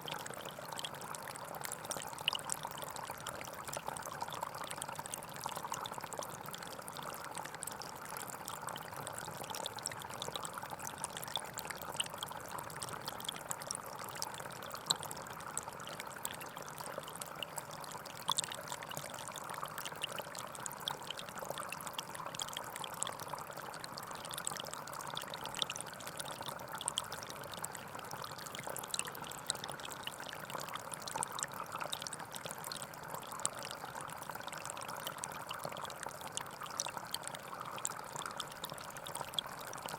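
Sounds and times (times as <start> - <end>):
stream flowing and trickling: 0.0 - 39.9.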